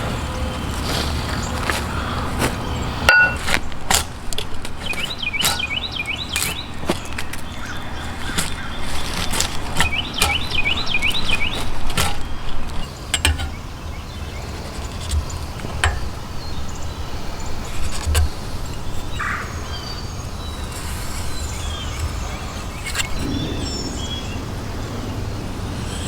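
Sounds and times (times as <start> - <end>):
hand tools knocking on wood: 3.1 - 5.8
songbird warbling trill: 4.8 - 26.0
low rumble: 23.2 - 26.0.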